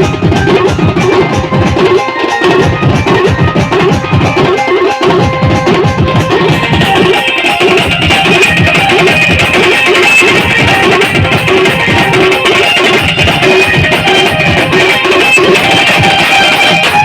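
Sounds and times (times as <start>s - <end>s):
fast dense drumming: 0.0s - 17.0s
held melodic notes: 0.0s - 17.0s.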